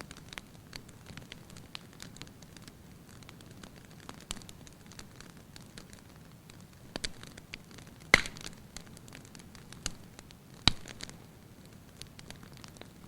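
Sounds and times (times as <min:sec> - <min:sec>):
low hiss of fire: 0:00.0 - 0:13.0
sharp pops of fire: 0:00.1 - 0:13.0.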